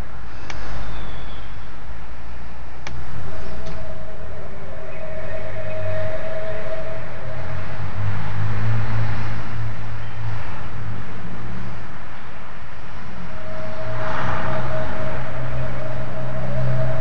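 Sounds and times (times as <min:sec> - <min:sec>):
loud low drone: 0:01.7 - 0:17.0
held higher tone: 0:03.3 - 0:08.6, 0:13.1 - 0:17.0.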